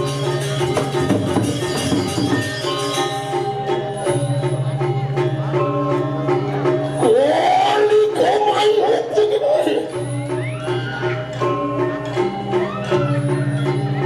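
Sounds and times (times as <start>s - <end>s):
quick percussive strikes: 0.0s - 7.0s
metallophones ringing melody: 0.0s - 14.0s.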